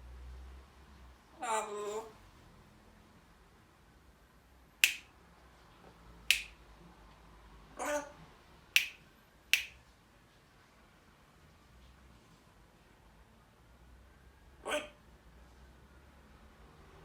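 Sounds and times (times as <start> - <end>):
parrot call: 1.4 - 2.2, 7.8 - 8.2, 14.6 - 15.0
parrot clicking: 4.8 - 5.1, 6.3 - 6.6, 8.8 - 9.0, 9.6 - 9.8.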